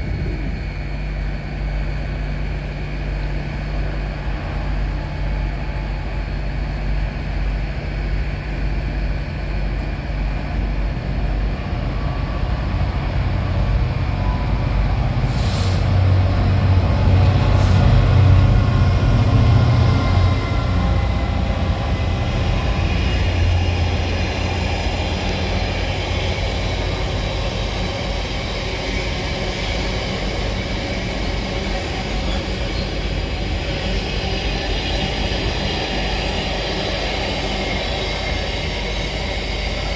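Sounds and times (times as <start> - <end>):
diesel train rumbling: 0.0 - 39.9
short hisses: 15.3 - 15.9.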